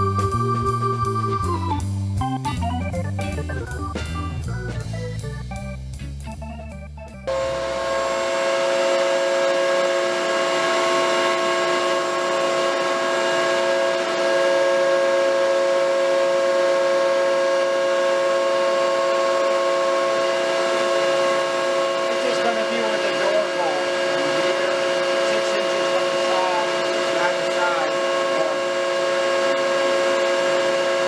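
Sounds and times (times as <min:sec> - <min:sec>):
organ music: 0:00.0 - 0:09.6, 0:10.3 - 0:31.0
workshop machine humming: 0:06.4 - 0:31.0.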